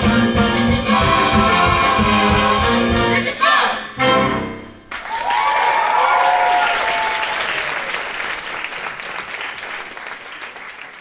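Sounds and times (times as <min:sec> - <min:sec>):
audience applauding: 0:04.9 - 0:11.0
whoops: 0:05.0 - 0:07.9.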